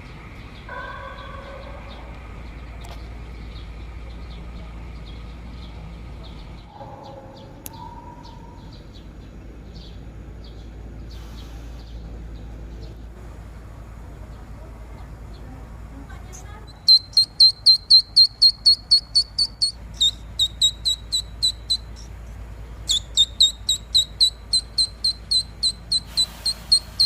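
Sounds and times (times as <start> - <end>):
small birds chirping: 0.0 - 27.0
grass blade reed call: 16.7 - 22.1, 22.8 - 27.0.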